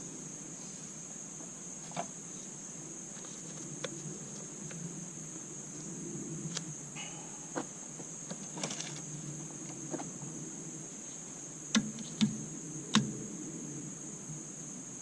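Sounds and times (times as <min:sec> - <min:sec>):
steady high-pitched hiss: 0:00.0 - 0:15.0.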